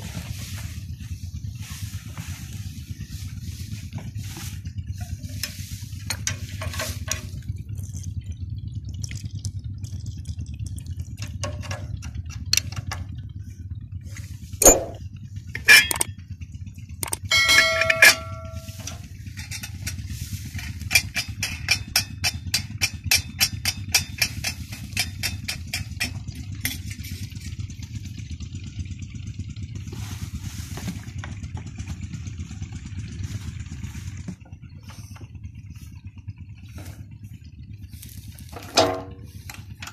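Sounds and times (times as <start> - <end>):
diesel engine humming: 0.0 - 39.9
rapid ticks: 7.8 - 12.8
metallic clanks: 14.6 - 16.1, 17.0 - 27.5, 38.5 - 39.9.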